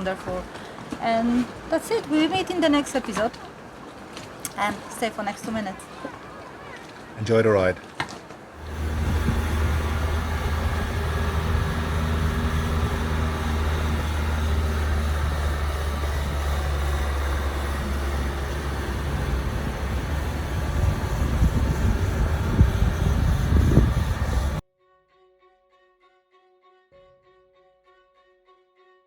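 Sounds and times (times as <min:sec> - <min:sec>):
road noise: 0:00.0 - 0:24.6
low engine drone: 0:08.6 - 0:24.6.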